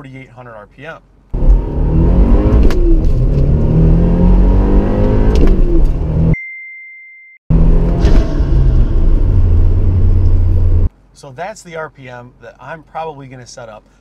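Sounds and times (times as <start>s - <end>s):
car engine accelerating: 1.3s - 6.4s, 7.5s - 10.9s.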